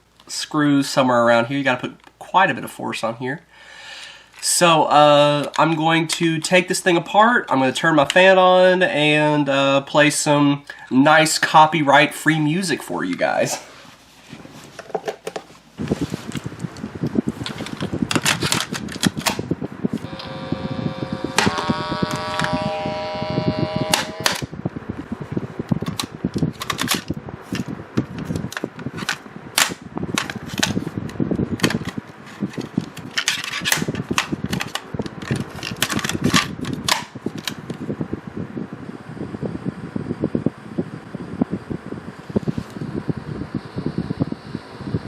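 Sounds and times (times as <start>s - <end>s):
electric fan hiss: 0.0s - 45.0s
high squeal: 20.1s - 24.4s.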